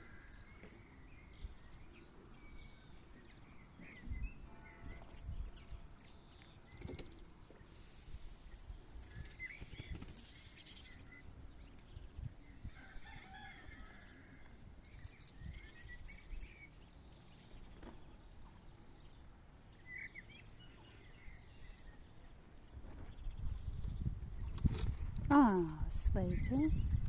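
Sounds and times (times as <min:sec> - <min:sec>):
quails peeping: 0:00.0 - 0:25.0
small clicks and rustles: 0:14.8 - 0:16.6.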